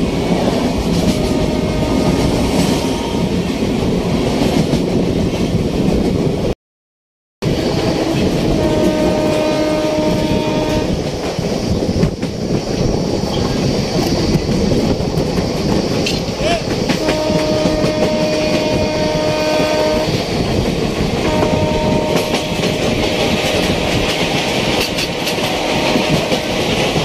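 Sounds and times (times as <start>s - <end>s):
train wheel and track noise: 0.0s - 6.6s, 7.4s - 27.0s
train horn: 1.0s - 3.4s, 8.1s - 11.0s, 16.9s - 20.2s, 21.2s - 23.2s, 25.3s - 26.6s.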